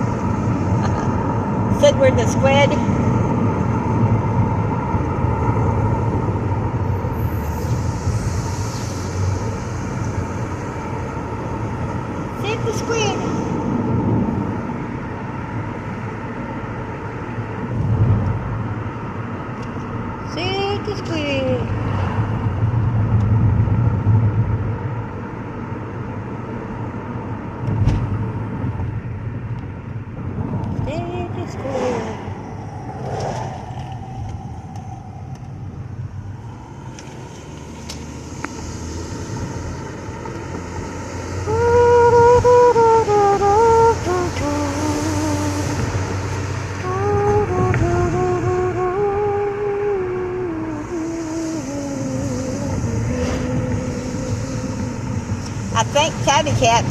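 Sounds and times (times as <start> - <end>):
car road and engine rumble: 0.0 - 56.9.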